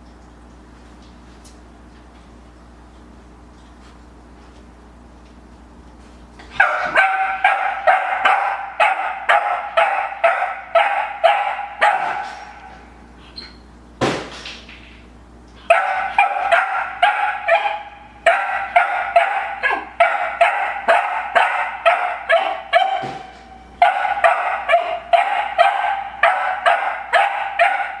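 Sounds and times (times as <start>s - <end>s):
puppy barking: 6.5s - 12.9s, 15.6s - 28.0s.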